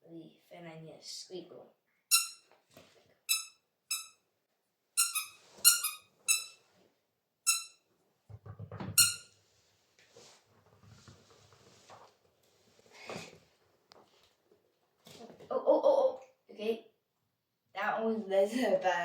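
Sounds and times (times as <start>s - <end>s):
squeaky dog toy squeaking: 2.1s - 2.5s, 3.3s - 4.2s, 5.0s - 6.6s, 7.4s - 7.8s, 9.0s - 9.3s.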